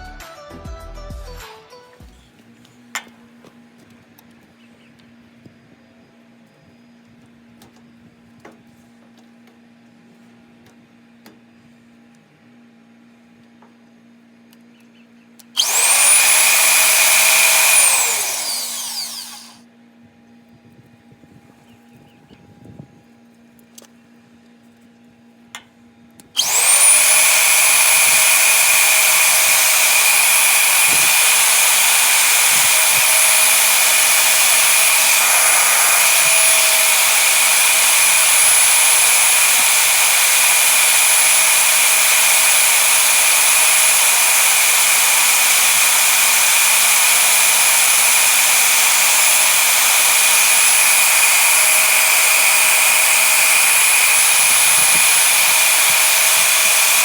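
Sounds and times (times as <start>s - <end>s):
power tool motor whining: 15.6s - 19.6s, 26.4s - 57.0s.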